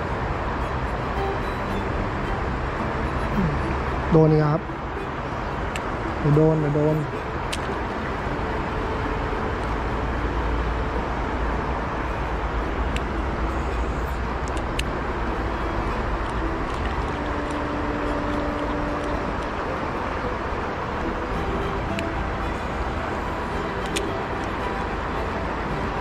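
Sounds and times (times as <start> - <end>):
fast-flowing river rushing: 0.0 - 26.0.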